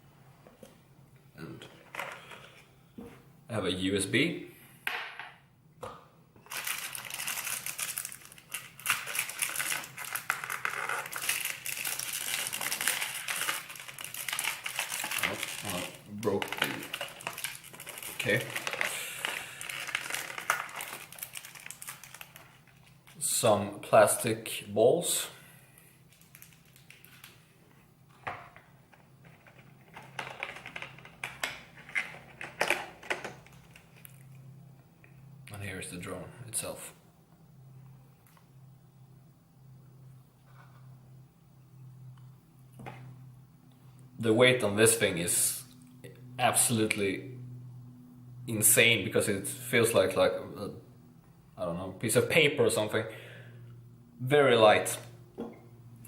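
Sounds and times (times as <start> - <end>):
plastic packaging crinkling: 6.4 - 23.2, 26.1 - 27.4, 29.2 - 34.4.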